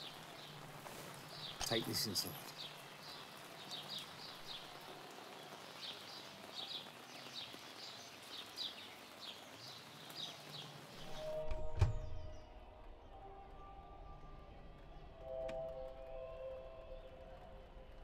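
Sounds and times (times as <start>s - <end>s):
faint outdoor hiss: 0.0s - 12.8s
small birds chirping: 0.0s - 13.1s.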